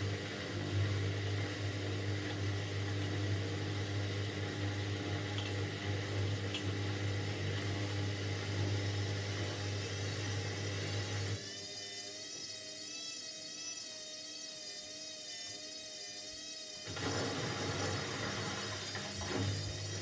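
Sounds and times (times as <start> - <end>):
washing machine hum: 0.0 - 11.4, 16.9 - 20.0.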